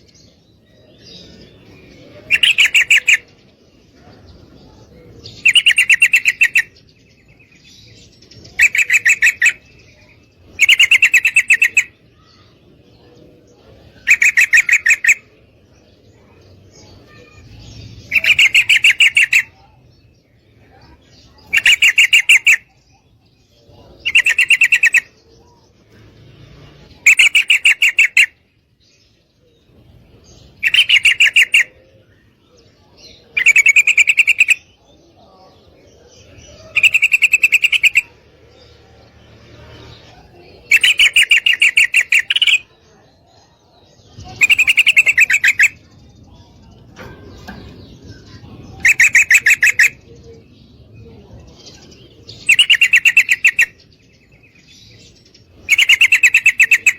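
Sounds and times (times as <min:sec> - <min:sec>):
bird chattering trill: 0:01.2 - 0:03.4, 0:04.6 - 0:06.9, 0:08.2 - 0:12.5, 0:13.8 - 0:15.4, 0:16.8 - 0:19.8, 0:20.6 - 0:23.1, 0:23.7 - 0:25.2, 0:26.9 - 0:28.5, 0:30.4 - 0:32.4, 0:33.3 - 0:34.8, 0:36.2 - 0:38.8, 0:39.4 - 0:43.2, 0:43.9 - 0:50.4, 0:51.6 - 0:56.9.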